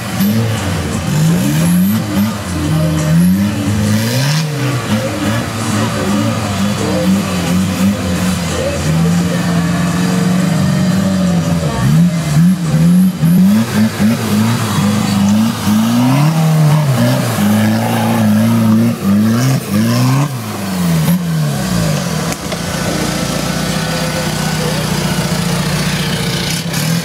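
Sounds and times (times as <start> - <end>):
truck engine revving: 0.0 - 27.0.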